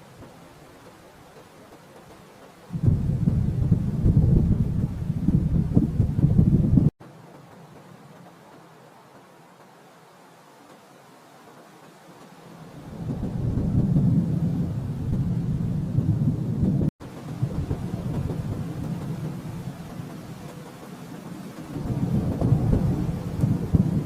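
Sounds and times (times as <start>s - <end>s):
rolling thunder: 2.7s - 6.9s, 12.8s - 24.0s.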